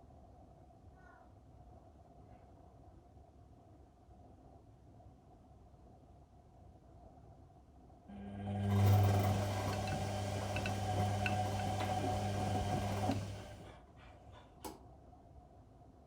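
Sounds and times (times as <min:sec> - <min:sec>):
washing machine motor humming: 0:08.1 - 0:13.8.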